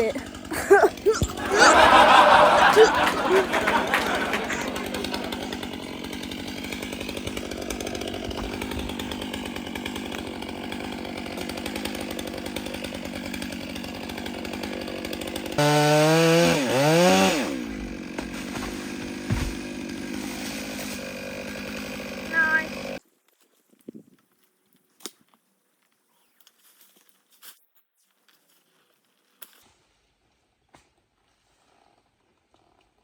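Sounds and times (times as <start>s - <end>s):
chainsaw idling and revving: 0.0s - 23.0s.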